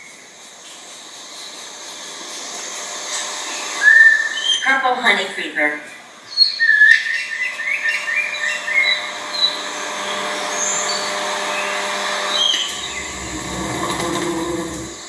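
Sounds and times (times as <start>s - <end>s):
background hiss: 0.0s - 15.0s
songbird chirping: 6.3s - 10.2s, 12.5s - 15.0s
low rumble: 12.7s - 15.0s.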